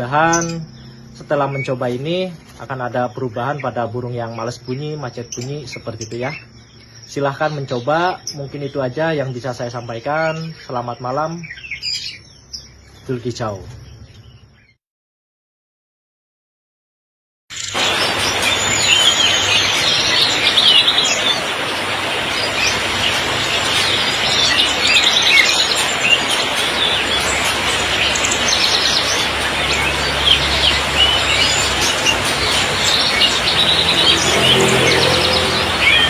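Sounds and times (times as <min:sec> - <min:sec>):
songbirds chirping and trilling: 0:00.0 - 0:14.8, 0:17.5 - 0:36.0
heavy rain hiss: 0:17.6 - 0:36.0.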